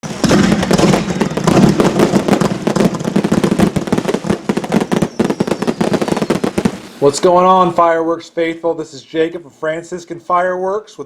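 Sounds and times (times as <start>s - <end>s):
firework crackling and banging: 0.0s - 7.9s.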